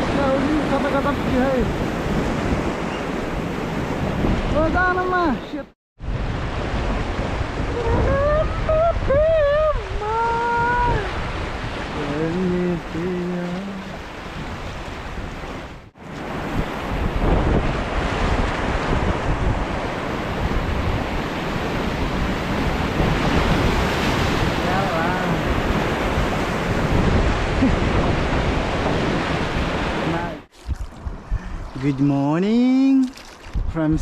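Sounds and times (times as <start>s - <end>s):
wind buffeting microphone: 0.0s - 34.0s
rushing river water: 6.3s - 30.5s.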